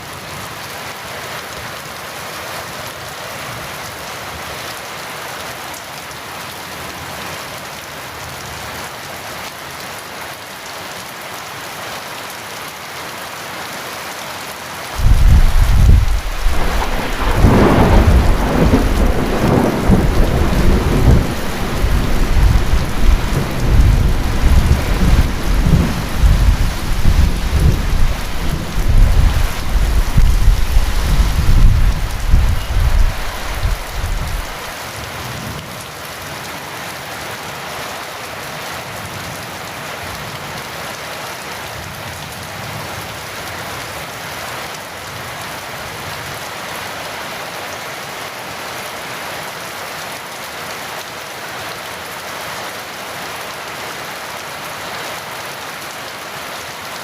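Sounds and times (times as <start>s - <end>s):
heavy rain falling: 0.0s - 57.0s
thunder rumbling: 15.0s - 34.7s.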